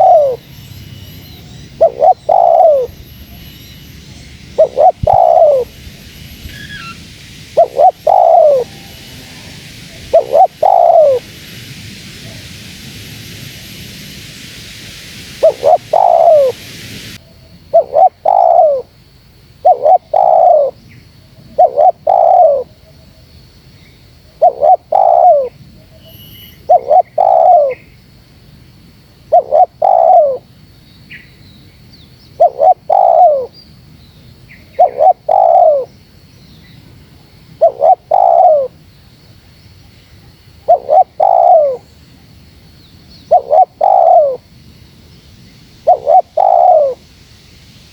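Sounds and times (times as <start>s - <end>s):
dove cooing: 0.0s - 0.4s, 1.8s - 2.9s, 4.6s - 5.7s, 7.6s - 8.8s, 9.9s - 11.2s, 15.4s - 16.6s, 17.7s - 18.9s, 19.6s - 20.8s, 21.5s - 22.7s, 24.4s - 25.6s, 26.7s - 27.8s, 29.3s - 30.4s, 32.4s - 33.5s, 34.8s - 35.9s, 37.6s - 38.8s, 40.7s - 41.8s, 43.3s - 44.4s, 45.9s - 47.0s
faint hiss: 0.0s - 47.9s.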